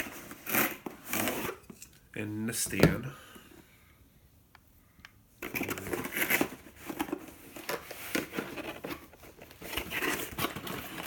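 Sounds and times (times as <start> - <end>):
packaging rustling and crinkling: 5.4 - 11.0.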